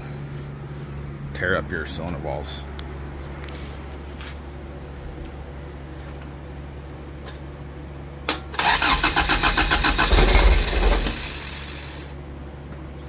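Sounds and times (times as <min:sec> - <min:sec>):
engine catching and running briefly: 0:08.5 - 0:12.1
starter cranking engine: 0:08.6 - 0:12.1.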